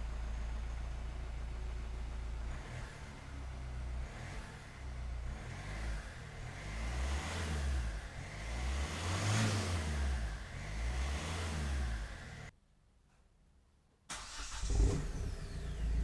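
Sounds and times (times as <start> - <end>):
diesel engine revving: 2.3 - 12.5, 14.2 - 16.0.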